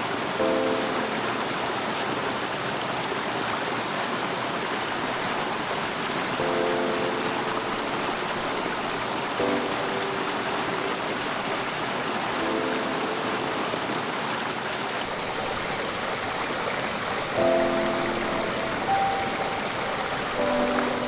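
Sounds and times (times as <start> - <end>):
mountain stream rushing: 0.0 - 21.0
soft background music notes: 0.3 - 2.0, 6.4 - 14.4, 17.3 - 21.0.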